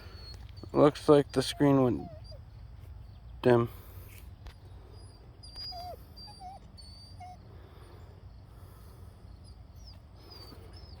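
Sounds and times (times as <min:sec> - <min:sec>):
puppy whimpering: 0:00.0 - 0:02.5, 0:04.8 - 0:07.5.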